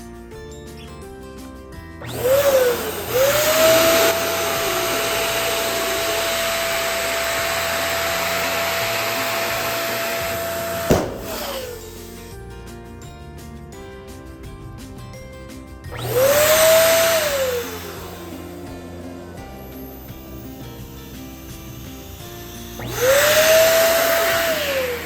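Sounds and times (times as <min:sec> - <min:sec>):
balloon inflator motor whine: 0:02.0 - 0:12.1, 0:16.0 - 0:25.0
sharp click: 0:10.9 - 0:11.8.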